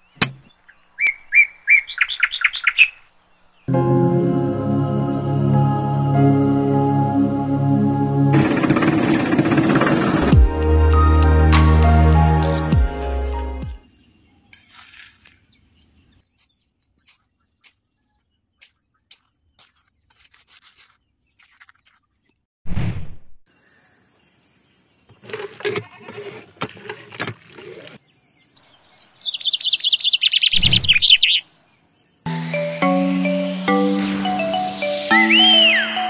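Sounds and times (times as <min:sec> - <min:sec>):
bird chirping: 0:00.0 - 0:03.7, 0:13.8 - 0:21.5, 0:23.6 - 0:36.0.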